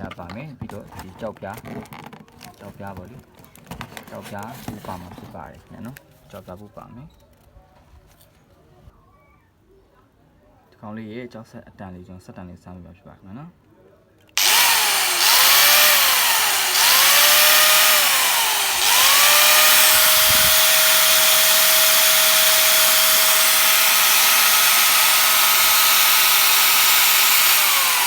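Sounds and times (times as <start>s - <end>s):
angle grinder motor whining: 14.4s - 28.0s.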